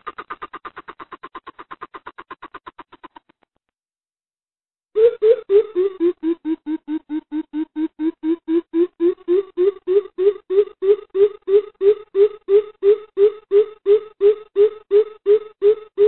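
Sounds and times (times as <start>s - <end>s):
coucal deep hooting call: 5.0s - 16.0s.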